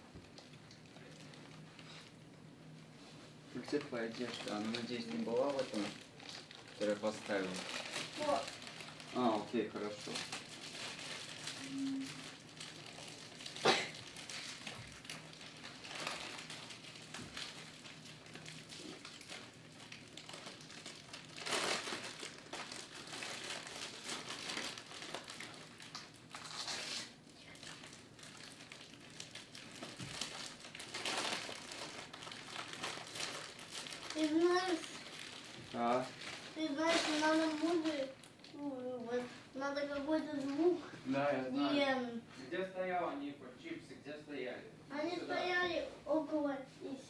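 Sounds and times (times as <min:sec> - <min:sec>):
packaging crinkling and rustling: 0:00.1 - 0:02.3, 0:03.2 - 0:41.3.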